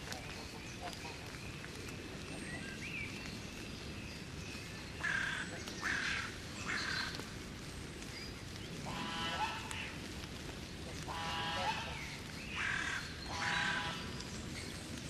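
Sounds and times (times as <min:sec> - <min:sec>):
loud harsh bird calls: 0:04.9 - 0:07.3, 0:08.7 - 0:10.0, 0:11.0 - 0:14.4.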